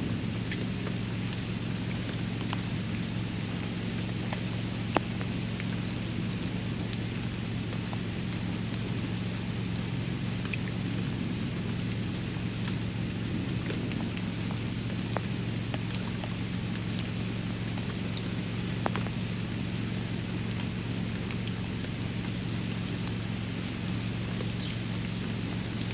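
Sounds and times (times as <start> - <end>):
steady low hum: 0.0 - 25.9
steady rain: 0.0 - 25.9
water drops ticking: 0.5 - 5.8, 13.6 - 25.9.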